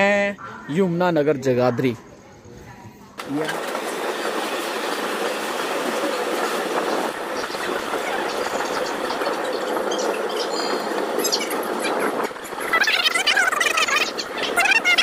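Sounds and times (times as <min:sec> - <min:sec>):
train wheels rattling on rails: 0:03.2 - 0:15.0
high wheel squeals: 0:07.2 - 0:15.0.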